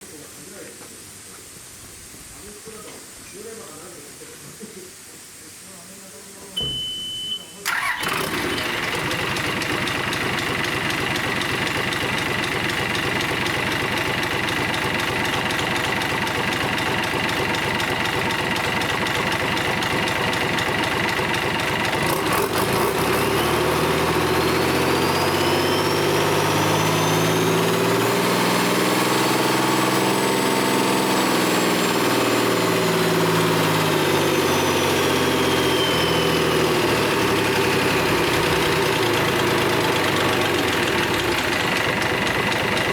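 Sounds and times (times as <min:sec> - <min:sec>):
marine diesel engine idling: 0:07.7 - 0:22.5, 0:37.0 - 0:42.9.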